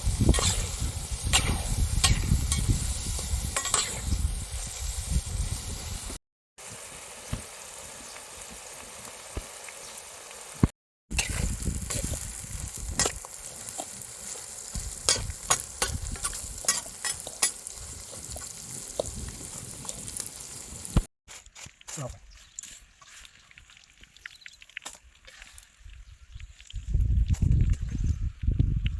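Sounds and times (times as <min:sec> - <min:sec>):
grasshoppers sizzling in a pan: 0:00.0 - 0:27.9
utensil clicking and scraping pan: 0:00.3 - 0:00.7, 0:03.6 - 0:04.0, 0:13.0 - 0:19.1.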